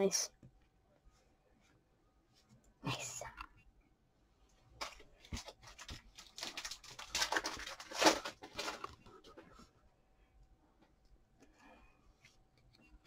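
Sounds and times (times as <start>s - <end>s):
foil wrapper crinkling: 4.8s - 9.0s
foil wrapper tearing: 5.4s - 8.8s.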